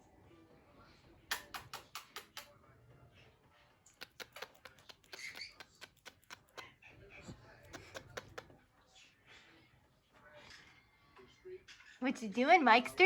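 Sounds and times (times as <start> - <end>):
faint sharp clicks and taps: 3.9 - 8.6.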